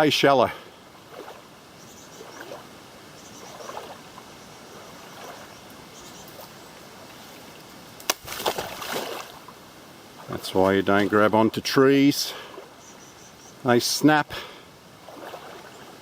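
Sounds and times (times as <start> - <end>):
rustling and splashing: 0.0 - 12.9, 14.4 - 16.0
wading through water: 0.0 - 13.3, 14.3 - 16.0
tree branch snapping: 8.0 - 8.8.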